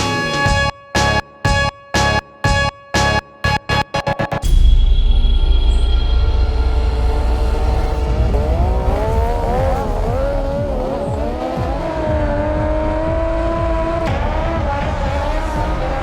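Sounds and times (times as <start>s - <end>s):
vehicle engine revving: 7.0s - 16.0s.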